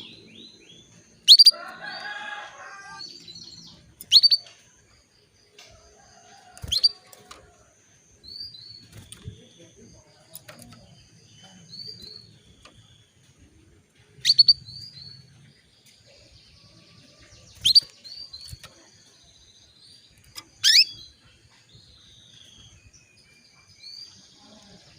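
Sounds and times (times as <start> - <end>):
canary chirping: 0.0 - 4.6, 6.1 - 7.3, 14.2 - 15.4, 16.5 - 19.4, 20.0 - 24.2.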